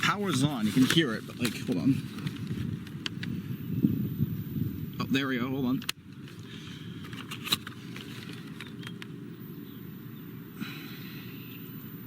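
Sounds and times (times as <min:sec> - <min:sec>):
low rumbling background: 0:00.0 - 0:12.0.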